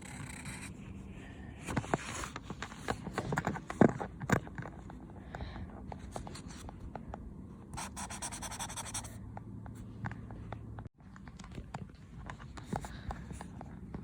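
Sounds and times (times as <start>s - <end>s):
pen scratching on paper: 7.8s - 9.2s.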